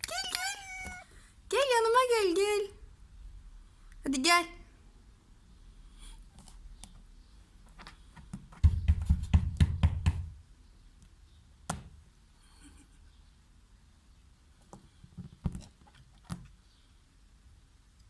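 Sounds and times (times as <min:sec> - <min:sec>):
heavy knocks and thuds: 0:08.5 - 0:10.4.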